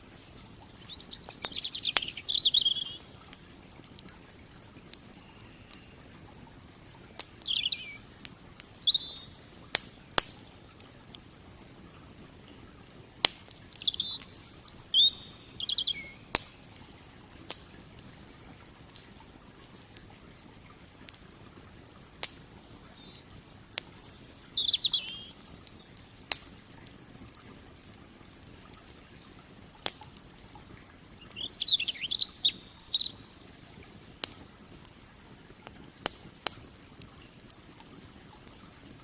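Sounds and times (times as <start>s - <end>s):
creek water flowing: 0.0s - 39.0s
wood fire crackling and popping: 0.0s - 39.0s
small bird twittering: 0.7s - 3.1s, 7.4s - 9.4s, 13.5s - 16.5s, 22.9s - 25.9s, 31.2s - 33.4s.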